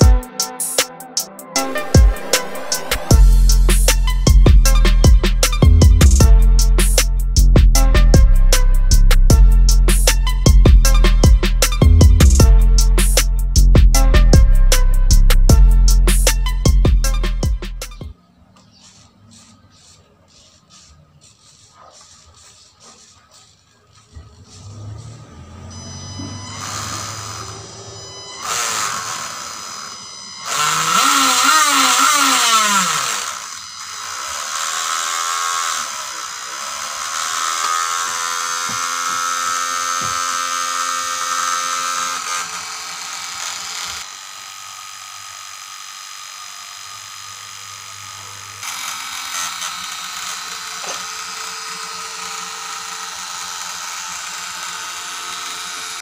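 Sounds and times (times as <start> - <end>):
small electric motor whine: 15.8 - 56.0.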